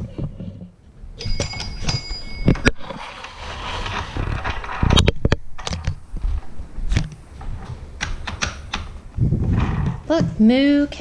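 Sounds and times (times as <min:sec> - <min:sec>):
small bell ringing: 0:01.2 - 0:02.7.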